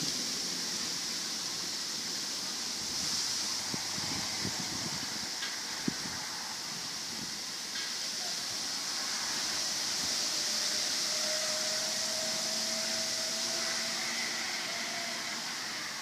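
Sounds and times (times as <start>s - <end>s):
strong wind blowing: 2.8s - 7.5s.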